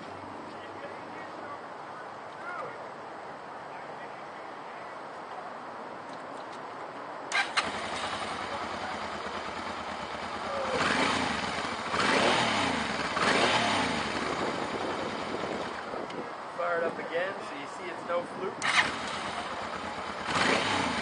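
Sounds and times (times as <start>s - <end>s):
motorcycle engine starting and revving: 7.3s - 16.1s, 18.6s - 21.0s.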